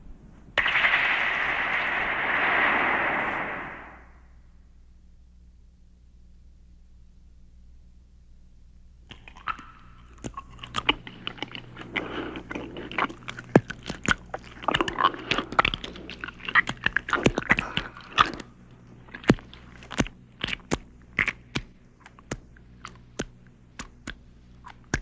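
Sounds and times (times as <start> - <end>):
sharp cracks and snaps: 0.5 - 4.1, 9.1 - 25.0
chewing and crunching: 9.1 - 25.0.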